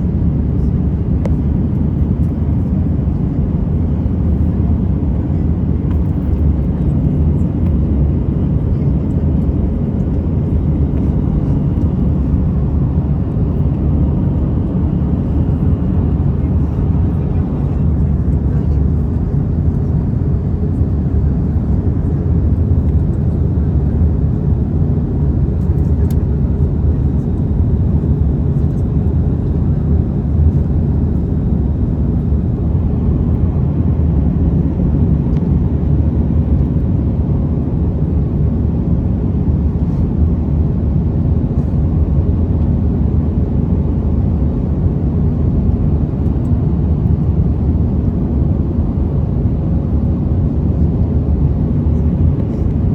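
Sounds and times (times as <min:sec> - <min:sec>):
engine and airflow rumble: 0:00.0 - 0:52.9.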